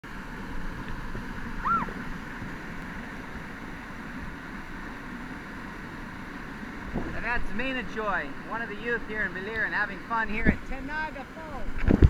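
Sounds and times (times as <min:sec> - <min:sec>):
waterfall rushing: 0:00.1 - 0:11.8
wind on microphone: 0:00.5 - 0:03.4, 0:06.2 - 0:09.3, 0:10.1 - 0:12.0.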